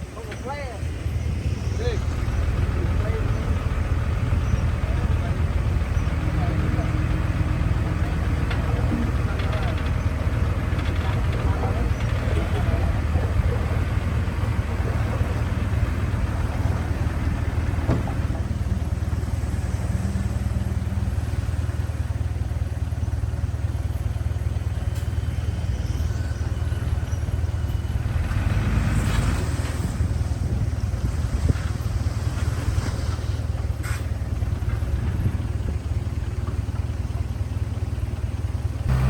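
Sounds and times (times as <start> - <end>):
diesel engine droning: 0.0 - 39.0.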